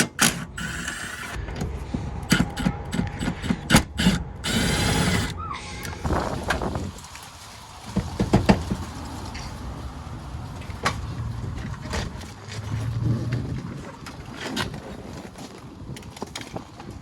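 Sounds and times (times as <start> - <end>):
low hum: 0.2 - 7.8.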